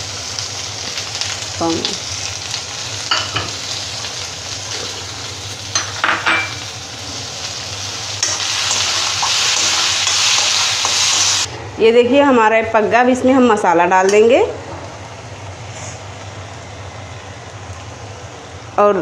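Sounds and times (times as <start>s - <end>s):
vegetables sizzling in hot oil: 0.0s - 11.5s.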